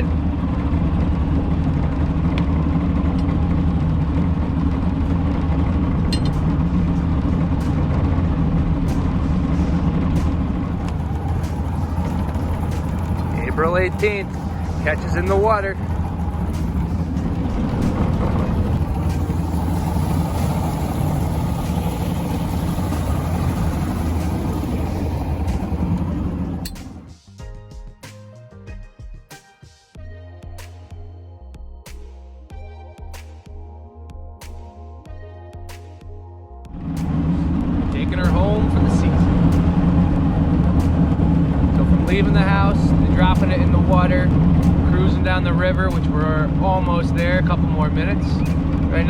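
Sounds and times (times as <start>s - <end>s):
outboard motor running: 0.0s - 27.2s, 36.2s - 49.0s
wind and water rushing: 5.2s - 27.0s, 36.7s - 49.0s.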